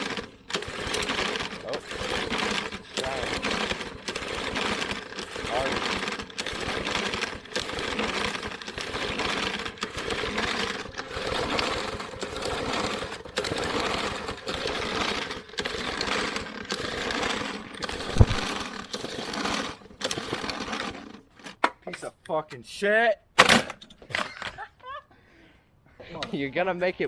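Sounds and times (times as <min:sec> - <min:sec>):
recoil starter pulls rattling: 0:00.0 - 0:21.6.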